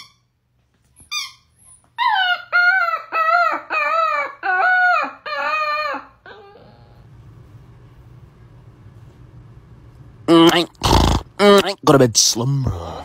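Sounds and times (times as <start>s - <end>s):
dog yipping: 0.0s - 0.3s, 1.0s - 7.0s
dog howling: 2.0s - 7.0s.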